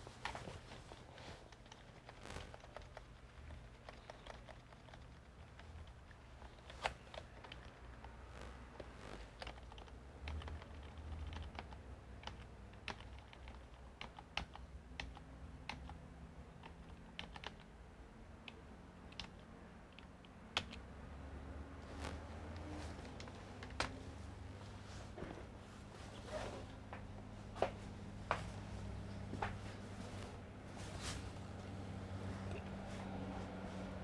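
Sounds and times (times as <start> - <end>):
faint low hum: 0.0 - 34.0
computer keyboard typing: 1.5 - 17.7, 18.4 - 20.9.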